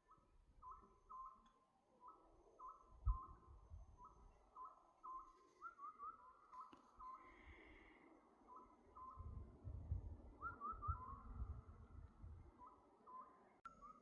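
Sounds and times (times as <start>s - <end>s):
owl whistled calls: 0.0s - 7.8s, 8.5s - 9.4s, 10.4s - 11.7s, 12.6s - 14.0s
wind rumble: 9.0s - 12.6s
bird rising whistles: 10.4s - 11.6s.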